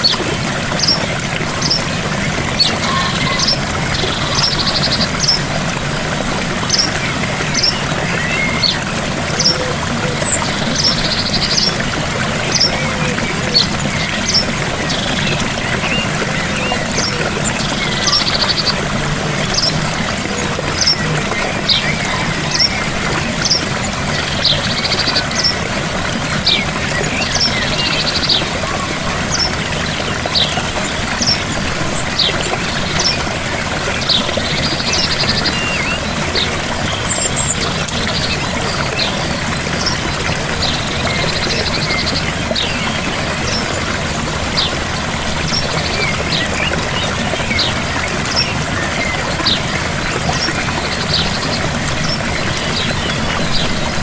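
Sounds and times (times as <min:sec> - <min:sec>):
birds chirping: 0:00.0 - 0:54.0
waterfall rushing: 0:00.0 - 0:54.0
buzzy bird trills: 0:02.5 - 0:05.4.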